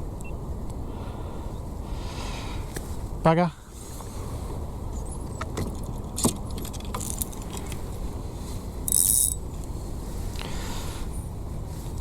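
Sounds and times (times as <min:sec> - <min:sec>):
fishing gear clicks and rattles: 0:05.5 - 0:07.8, 0:08.8 - 0:09.5.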